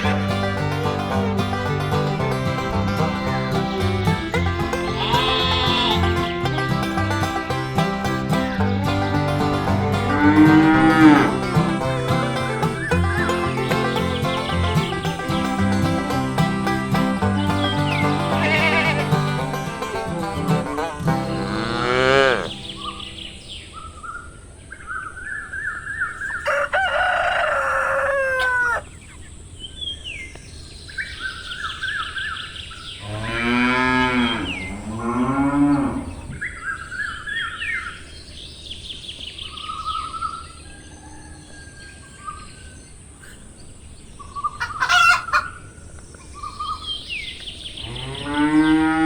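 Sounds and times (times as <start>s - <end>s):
hens clucking: 0.0s - 23.5s, 26.2s - 28.9s, 44.5s - 45.7s
small birds chirping: 0.0s - 26.4s, 35.6s - 49.0s
cow mooing: 4.9s - 6.3s, 9.7s - 12.8s, 17.7s - 19.4s, 20.2s - 22.7s, 33.0s - 36.4s, 47.8s - 49.0s.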